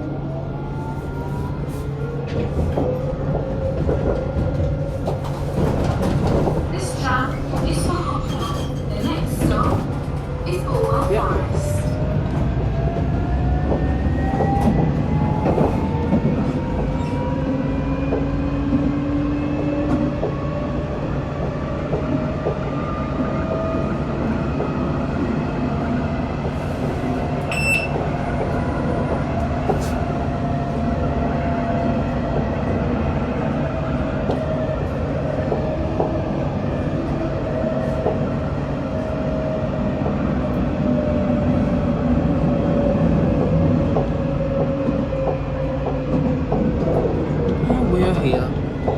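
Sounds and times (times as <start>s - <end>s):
high beep: 27.5s - 27.9s.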